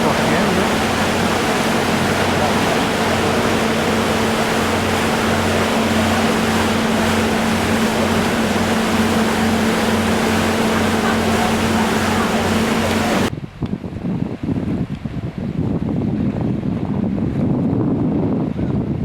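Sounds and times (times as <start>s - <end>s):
ship engine throbbing drone: 0.0s - 13.3s
rush of wind and water: 0.0s - 19.0s.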